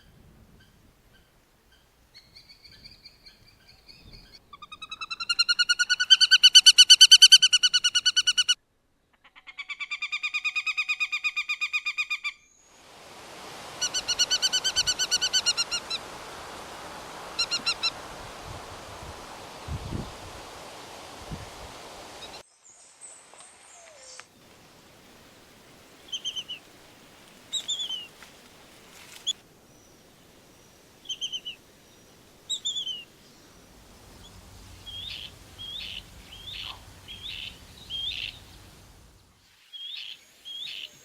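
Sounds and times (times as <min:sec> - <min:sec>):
bird calling: 0:02.2 - 0:08.6, 0:13.6 - 0:18.2, 0:26.0 - 0:26.7, 0:27.5 - 0:29.4, 0:32.5 - 0:38.8
steady background hiss: 0:12.4 - 0:41.0.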